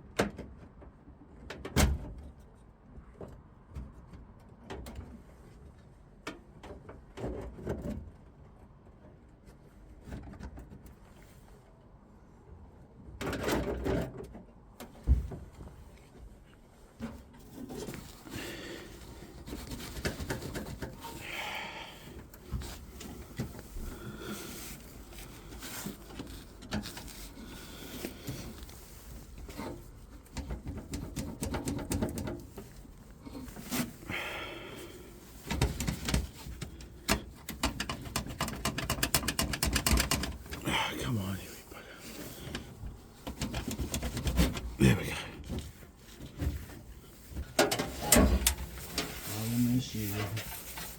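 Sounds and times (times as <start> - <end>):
hands and tools knocking and clicking: 30.3 - 32.5, 35.5 - 40.6.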